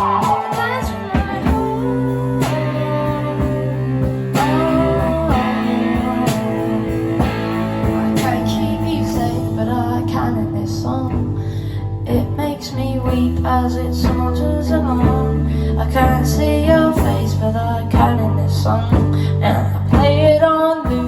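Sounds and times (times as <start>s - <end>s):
steady drum beat: 0.0s - 9.6s
rock band playing: 0.0s - 11.5s
guitars sustained chords: 0.0s - 21.0s.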